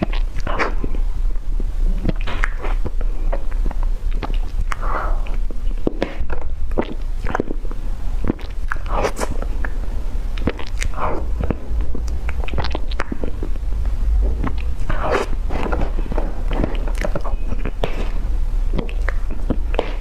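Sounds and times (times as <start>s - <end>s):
person chewing food: 0.0s - 20.0s
crunching bites: 10.4s - 13.6s.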